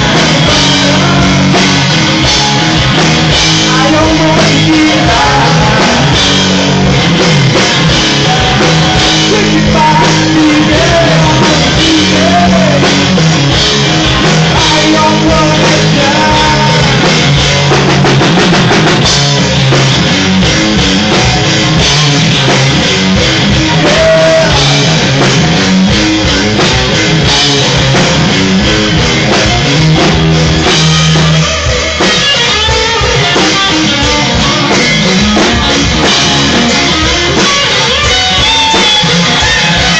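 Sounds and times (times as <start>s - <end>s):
person singing: 0.0s - 2.8s, 3.6s - 6.4s, 7.6s - 13.2s, 14.2s - 17.4s, 23.4s - 25.0s
bass guitar: 0.0s - 39.9s
drum kit: 0.0s - 39.9s
electric guitar: 0.0s - 39.9s.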